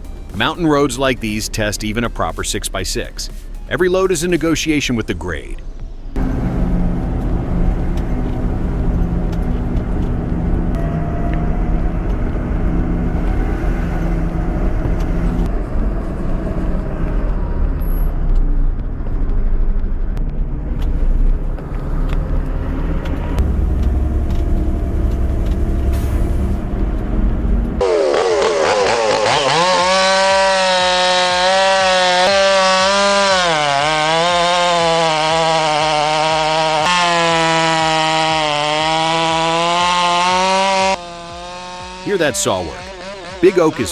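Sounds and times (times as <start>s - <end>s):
truck engine rumbling: 0.0s - 43.9s
chainsaw cutting wood: 27.8s - 43.8s.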